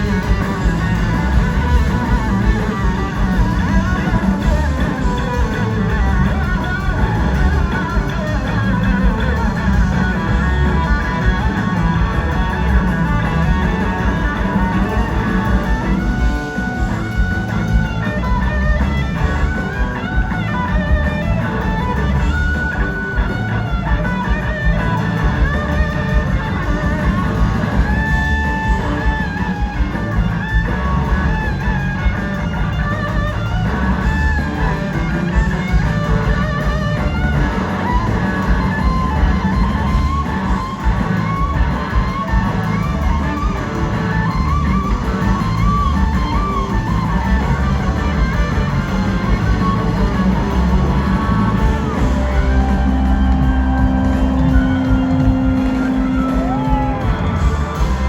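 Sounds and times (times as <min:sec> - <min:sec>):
electric guitar lead: 0:00.0 - 0:58.0
live rock band playing: 0:00.0 - 0:58.0.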